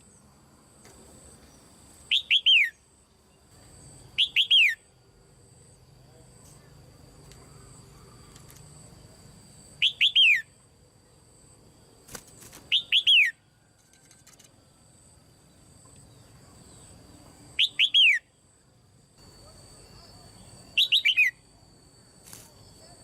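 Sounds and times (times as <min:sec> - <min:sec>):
bulbul whistled calls: 0:02.1 - 0:02.8, 0:04.2 - 0:04.8, 0:09.8 - 0:10.5, 0:12.7 - 0:13.4, 0:17.6 - 0:18.3, 0:20.7 - 0:21.4.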